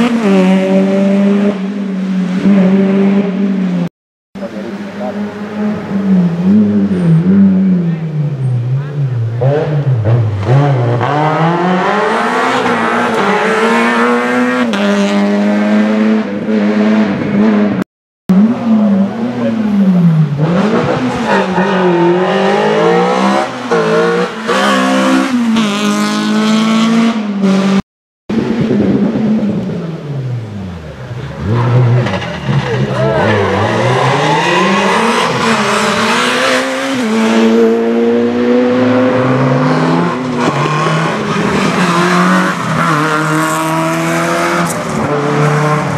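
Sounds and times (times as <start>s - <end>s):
rally car engines revving: 0.0s - 45.9s
car braking: 29.1s - 37.9s.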